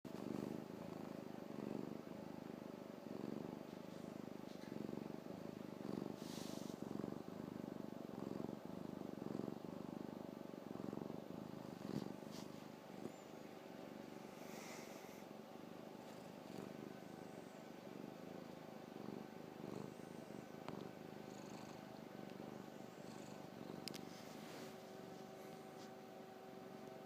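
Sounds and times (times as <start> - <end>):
cat purring: 0.1 - 27.0.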